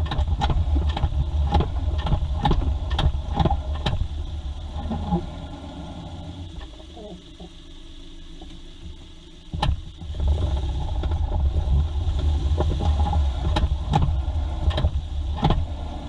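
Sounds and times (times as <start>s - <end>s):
sharp engine knocks: 0.0s - 4.2s, 8.4s - 15.8s
low engine rumble: 0.0s - 16.0s.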